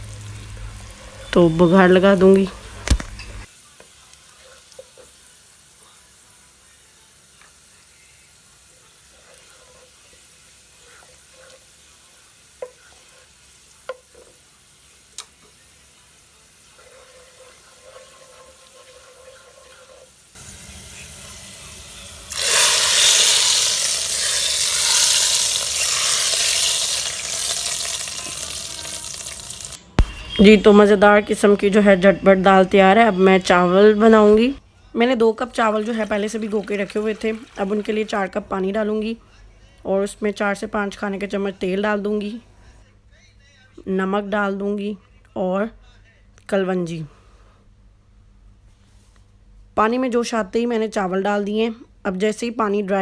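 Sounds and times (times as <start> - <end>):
onion frying in hot oil: 0.0 - 29.8, 35.6 - 38.4.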